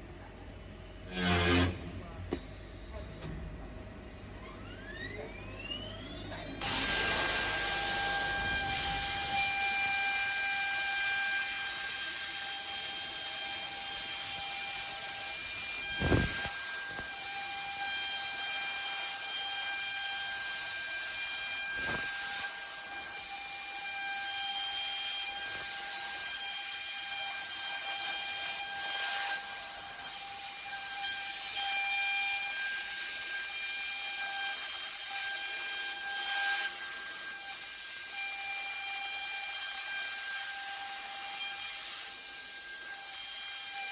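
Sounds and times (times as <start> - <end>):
router spindle whine: 3.9 - 29.6
cutter hiss: 6.6 - 9.6, 13.9 - 17.2, 21.8 - 22.7.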